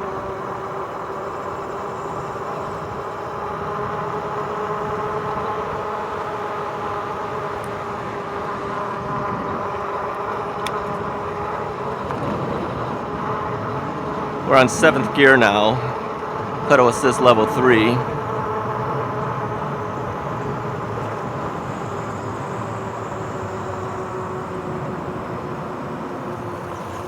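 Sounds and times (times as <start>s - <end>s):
electric bike motor whining: 0.0s - 14.5s, 15.9s - 16.7s, 18.1s - 27.0s
riding noise rush: 11.8s - 18.2s.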